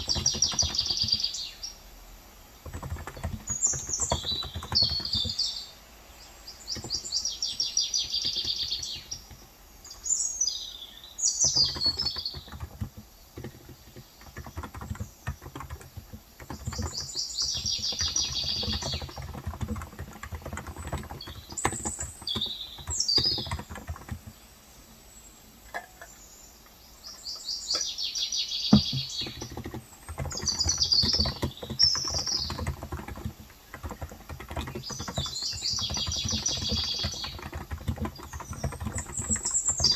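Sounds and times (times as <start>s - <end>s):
typing on keyboard: 0.0s - 1.3s, 2.6s - 5.5s, 6.7s - 10.0s, 11.4s - 24.4s, 28.7s - 39.9s
small birds chirping: 0.0s - 39.9s.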